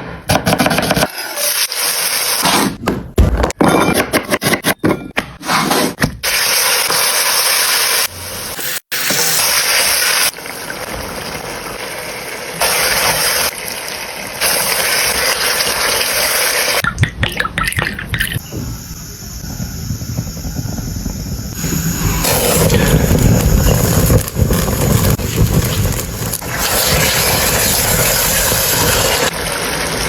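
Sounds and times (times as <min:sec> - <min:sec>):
food sizzling in frying pan: 0:06.3 - 0:16.8, 0:18.4 - 0:30.0.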